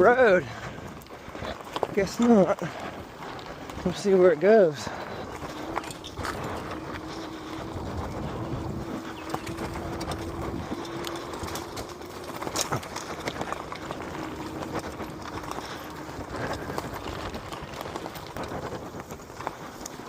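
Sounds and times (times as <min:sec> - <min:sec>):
bike clicks: 0:00.0 - 0:20.0
tyres and frame rattling: 0:00.0 - 0:20.0
electric motor whine: 0:05.3 - 0:17.1.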